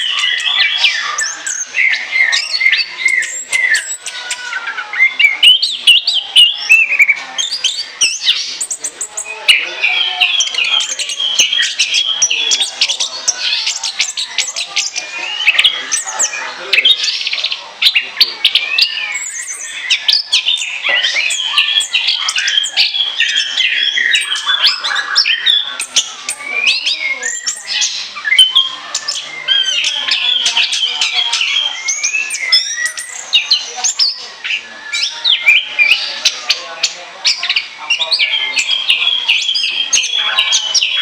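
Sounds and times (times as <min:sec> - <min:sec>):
thrush singing: 0:00.0 - 0:41.0.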